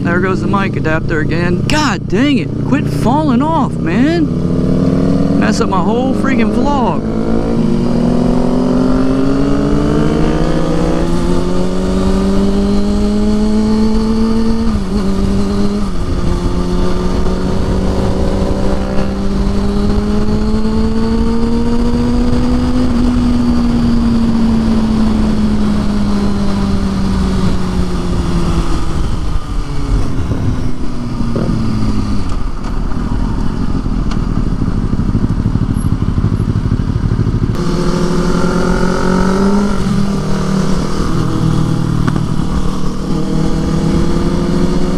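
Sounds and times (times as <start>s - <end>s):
motorcycle engine revving through gears: 0.0s - 44.9s
wind and road noise: 0.0s - 44.9s.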